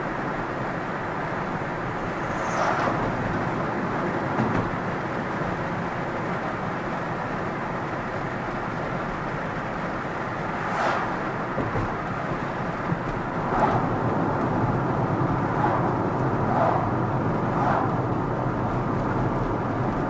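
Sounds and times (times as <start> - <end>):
tyre and road noise: 0.8 - 6.5, 9.9 - 20.0
vehicle rushing past: 1.8 - 4.4, 10.4 - 11.6, 13.3 - 18.8.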